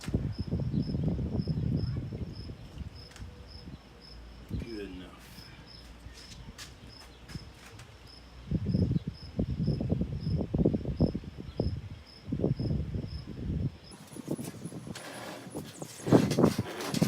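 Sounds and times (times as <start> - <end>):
crickets chirping: 0.1 - 17.0.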